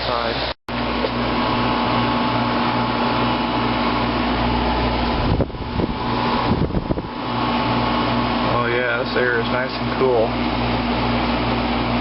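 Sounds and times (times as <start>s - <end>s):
air conditioner hum: 0.0s - 12.0s.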